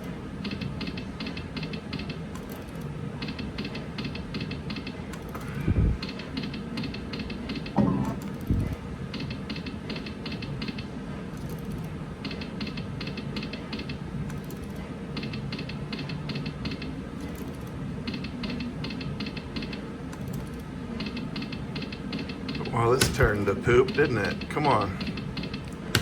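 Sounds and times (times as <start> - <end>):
slot machine reels clicking: 0.0 - 8.5, 9.1 - 26.0
casino floor din: 22.2 - 26.0.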